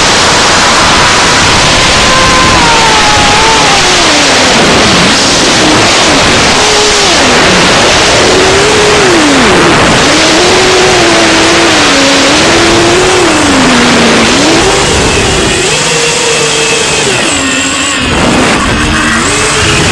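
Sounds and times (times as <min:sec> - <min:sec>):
loud rushing hiss: 0:00.0 - 0:19.9
quadcopter motors whining: 0:00.0 - 0:19.9.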